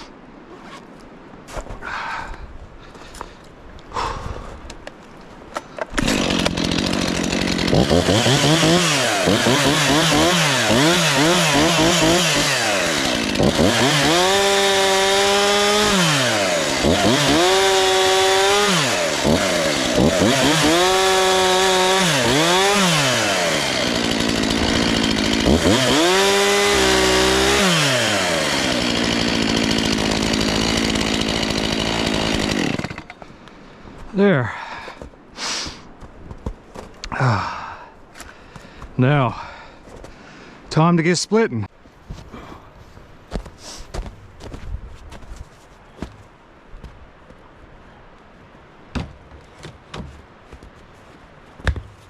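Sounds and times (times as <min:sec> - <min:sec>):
chainsaw revving and cutting logs: 0:05.9 - 0:33.2.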